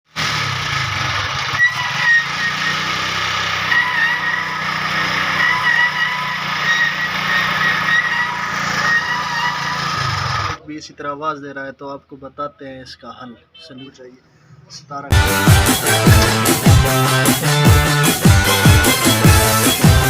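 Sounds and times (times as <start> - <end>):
motorcycle engine running: 0.1 - 10.6, 15.2 - 20.0
brake shoes squealing: 1.4 - 10.6, 15.2 - 20.0
knocks: 16.0 - 16.9.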